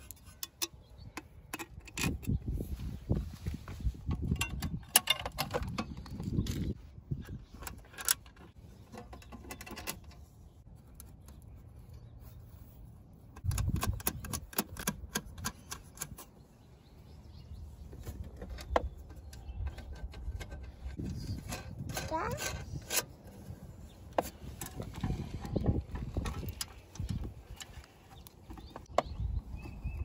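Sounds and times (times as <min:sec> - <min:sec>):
small metallic clicks and taps: 0:13.4 - 0:16.3.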